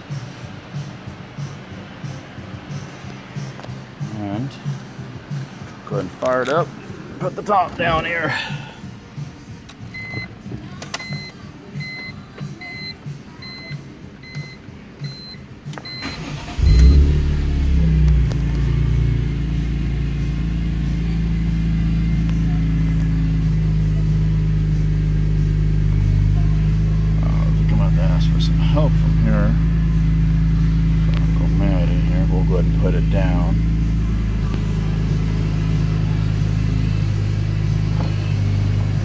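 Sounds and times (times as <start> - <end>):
car warning chime beeping: 9.9 - 10.3, 11.0 - 17.1
car engine starting and idling: 14.3 - 39.0.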